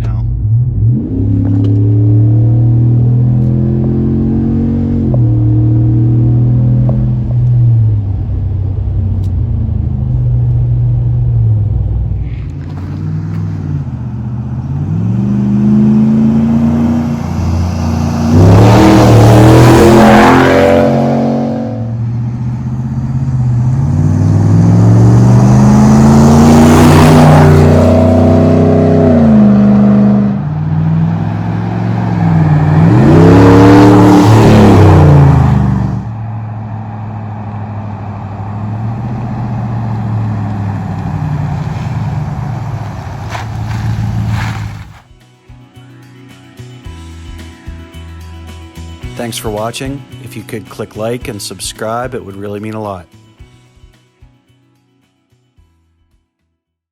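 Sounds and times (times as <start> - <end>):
pickup truck exhaust revving: 0.0 - 45.0.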